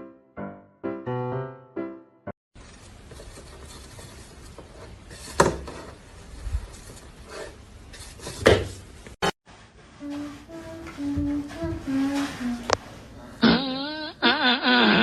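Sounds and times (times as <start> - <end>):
rustling and scraping: 2.6 - 13.0.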